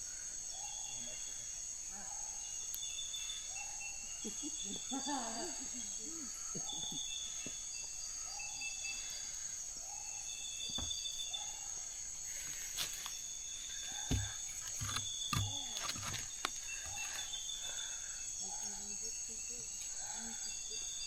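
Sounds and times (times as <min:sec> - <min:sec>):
high insect drone: 0:00.0 - 0:21.0
handling knocks and rustles: 0:13.9 - 0:17.2.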